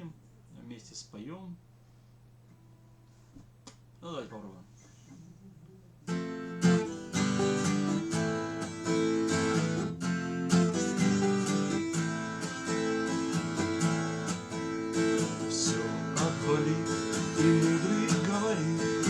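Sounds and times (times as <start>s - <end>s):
acoustic guitar strumming: 6.1s - 19.0s.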